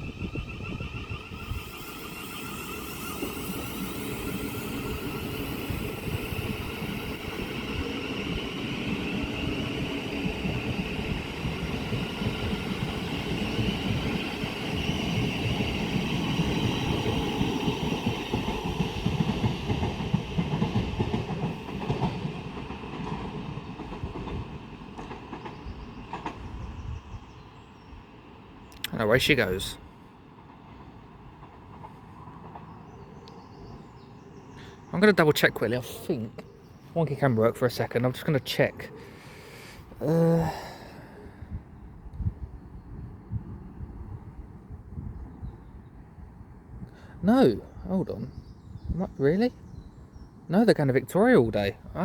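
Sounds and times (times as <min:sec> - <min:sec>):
electric train traction whine: 0:00.0 - 0:23.2.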